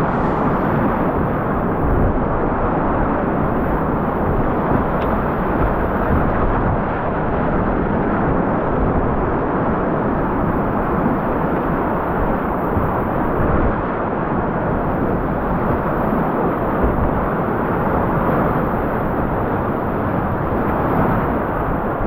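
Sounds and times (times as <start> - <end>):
whitewater rapids rushing: 0.0 - 2.0.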